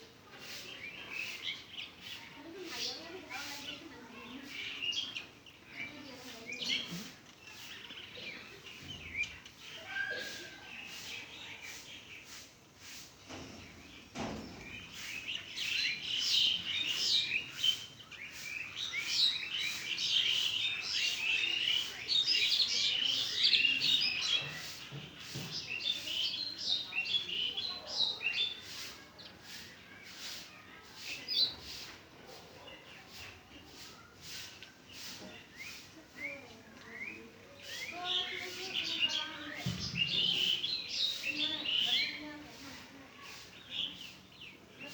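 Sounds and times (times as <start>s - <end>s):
sparrows chirping: 0.0s - 44.9s.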